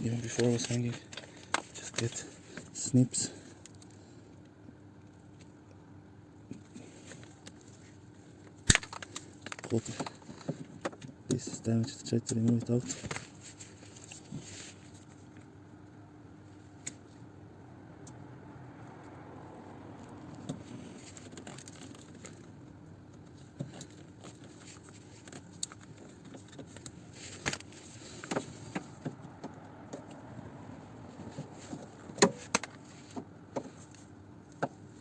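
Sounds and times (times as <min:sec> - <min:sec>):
tools clicking and knocking: 0:31.7 - 0:33.8.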